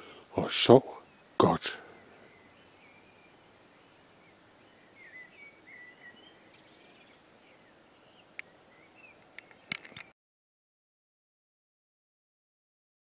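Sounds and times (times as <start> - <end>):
birds chirping and warbling: 0.0 - 10.1
quiet rural background noise: 0.0 - 10.2.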